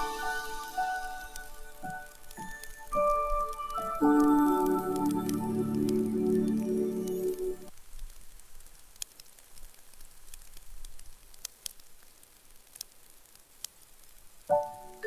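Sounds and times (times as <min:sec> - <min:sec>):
gentle chiming music: 0:00.0 - 0:07.7
wood fire crackling: 0:00.0 - 0:15.0.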